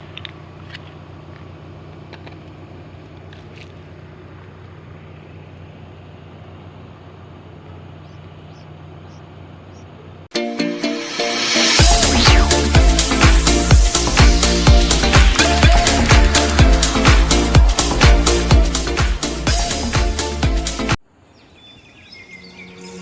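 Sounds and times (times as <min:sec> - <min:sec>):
diesel engine running: 0:00.0 - 0:10.3, 0:11.4 - 0:21.0
short high chirps: 0:10.8 - 0:16.0.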